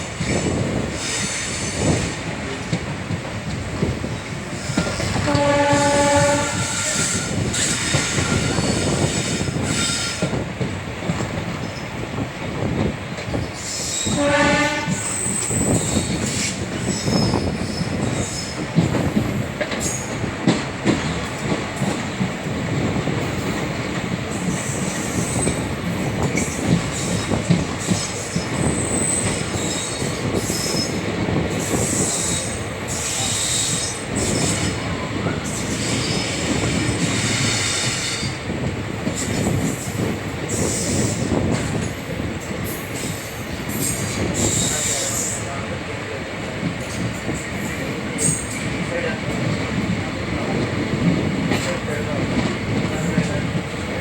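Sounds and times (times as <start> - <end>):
train coaches rumbling and clattering: 0.0 - 54.0
locomotive horn: 5.2 - 7.4, 14.1 - 15.3.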